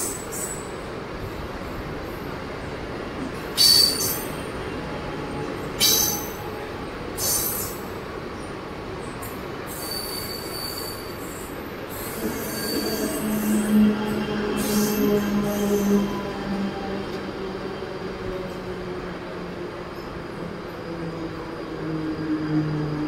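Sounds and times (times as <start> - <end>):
train rumbling past: 0.0 - 23.0
high-pitched metal squeals: 12.0 - 16.3.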